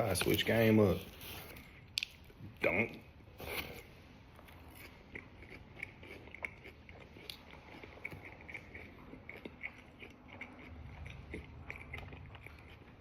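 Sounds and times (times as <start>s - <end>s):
chewing fries: 3.4s - 13.0s.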